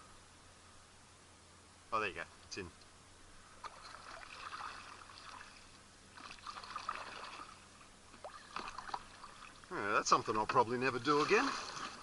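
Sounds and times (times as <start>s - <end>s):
water trickling and splashing: 3.5s - 12.0s.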